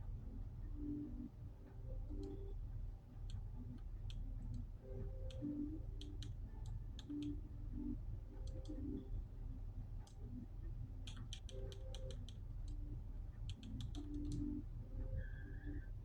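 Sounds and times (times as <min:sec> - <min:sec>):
sharp clicks: 0:04.0 - 0:07.4, 0:11.0 - 0:14.6.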